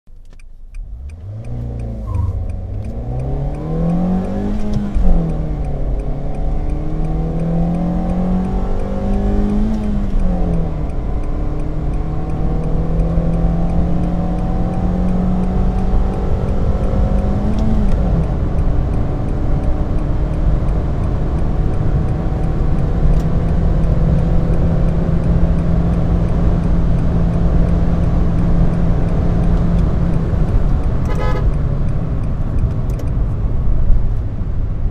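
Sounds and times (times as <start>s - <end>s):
car engine accelerating: 0.2s - 34.9s
short beep: 2.0s - 3.5s.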